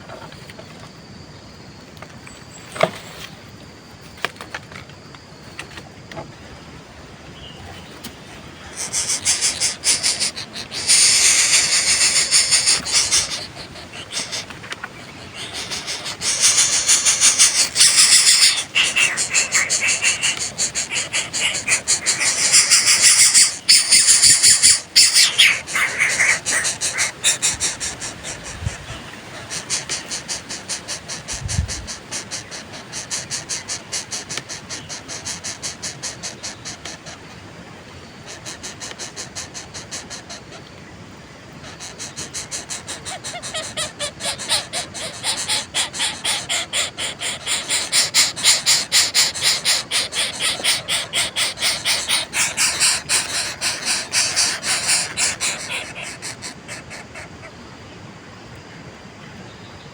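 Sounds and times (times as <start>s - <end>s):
background hiss: 5.4s - 59.9s
nestlings raspy begging calls: 8.3s - 37.4s, 38.2s - 40.6s, 41.6s - 57.6s.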